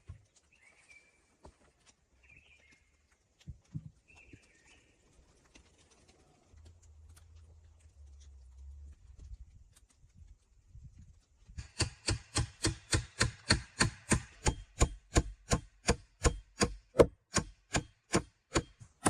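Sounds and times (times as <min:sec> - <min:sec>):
hand tool striking wood: 0:11.6 - 0:19.0.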